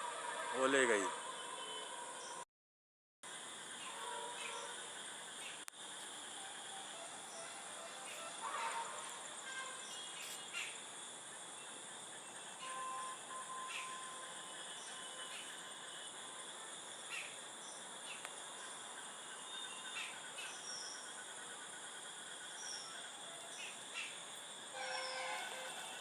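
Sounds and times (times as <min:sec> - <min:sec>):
insects shrilling: 0:12.4 - 0:26.0.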